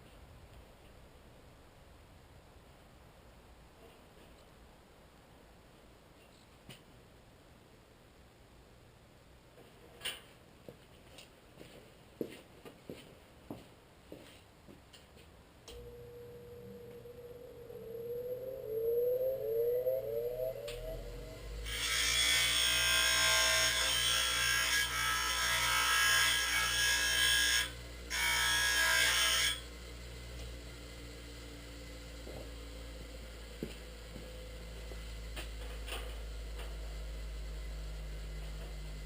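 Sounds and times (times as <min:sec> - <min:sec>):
low steady hum: 0:14.6 - 0:39.0
power tool running: 0:19.8 - 0:39.0.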